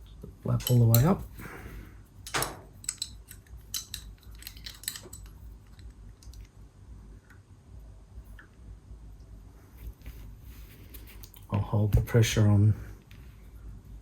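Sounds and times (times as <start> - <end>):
small steel parts clinking: 0.5 - 1.4, 2.2 - 6.4.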